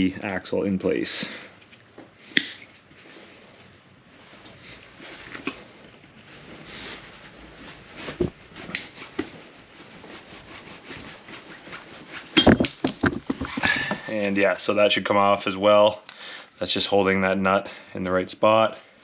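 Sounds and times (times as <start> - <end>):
metallic clicks and scrapes: 8.6 - 9.4.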